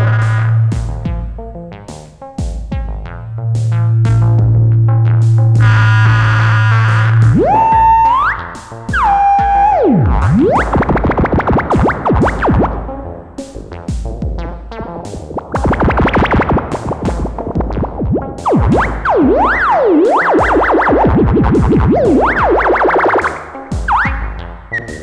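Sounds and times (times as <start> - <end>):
swooping synth bass line: 0.0 - 25.0.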